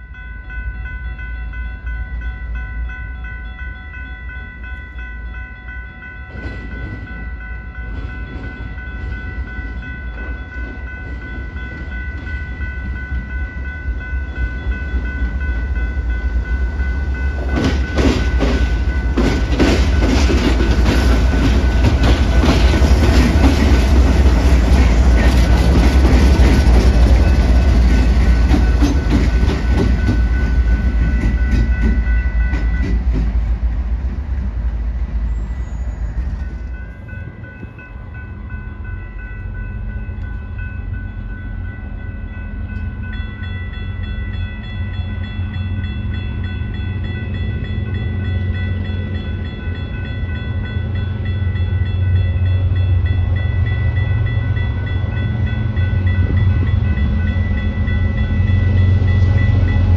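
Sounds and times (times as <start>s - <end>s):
steady high ringing tone: 0.0s - 20.3s, 35.3s - 59.9s
train wheels clattering on rails: 6.1s - 37.8s.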